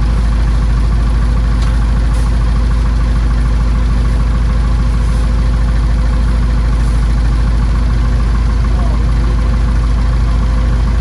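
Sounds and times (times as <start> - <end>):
backhoe engine running: 0.0 - 11.0.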